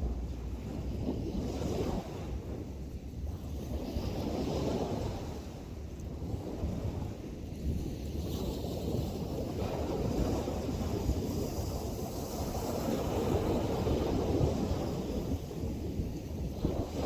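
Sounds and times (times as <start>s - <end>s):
ocean surf: 0.0s - 7.4s
wind buffeting microphone: 0.0s - 17.0s.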